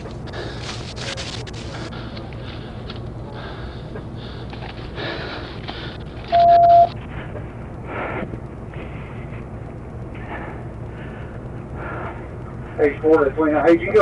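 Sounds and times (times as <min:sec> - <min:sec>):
low background hum: 0:00.0 - 0:14.0
electronic beep: 0:06.3 - 0:07.0.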